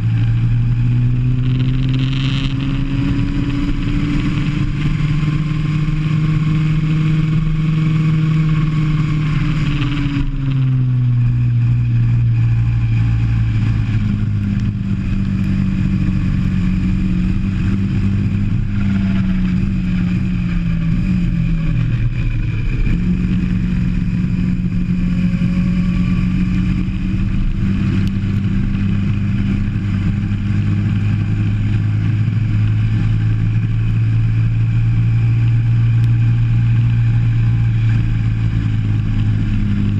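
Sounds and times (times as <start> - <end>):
go-kart engine running hard: 0.0 - 39.9.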